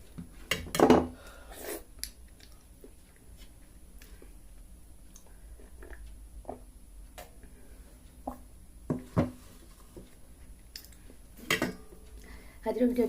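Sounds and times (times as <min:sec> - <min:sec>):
soft chewing: 0:02.0 - 0:06.7.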